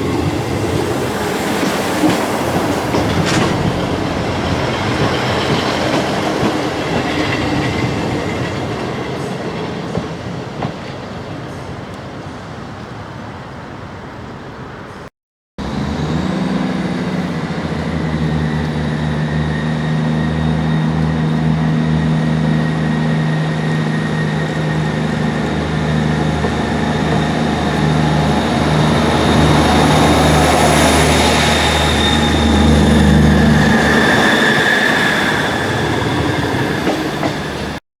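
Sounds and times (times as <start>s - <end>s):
train low drone: 0.0s - 13.1s, 15.6s - 37.8s
thin high whine: 18.0s - 37.8s.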